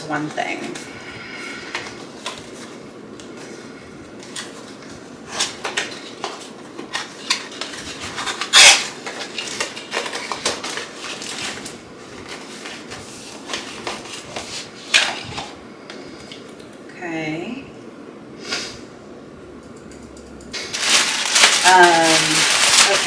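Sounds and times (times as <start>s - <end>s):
packaging clicks and crinkles: 4.2s - 15.5s, 20.7s - 23.0s
loud packaging rustle: 4.2s - 15.6s, 20.6s - 23.0s.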